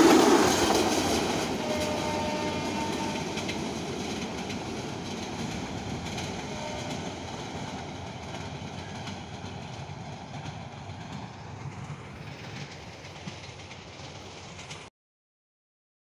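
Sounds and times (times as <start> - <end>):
train rumbling on rails: 0.0 - 14.9
wheels clickety-clack: 0.0 - 14.9.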